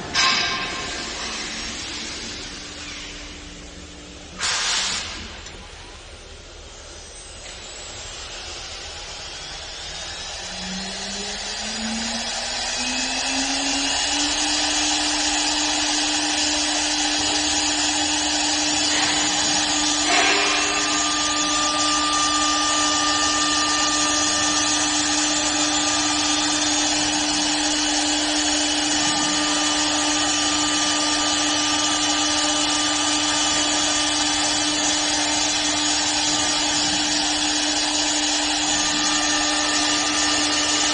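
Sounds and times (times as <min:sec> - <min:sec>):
hiss: 0:04.3 - 0:05.4
lathe motor whining: 0:06.6 - 0:40.9.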